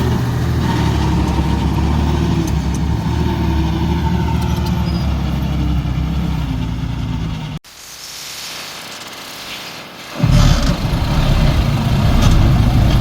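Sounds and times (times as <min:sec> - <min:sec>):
diesel machinery engine drone: 0:00.0 - 0:07.6, 0:10.2 - 0:13.0.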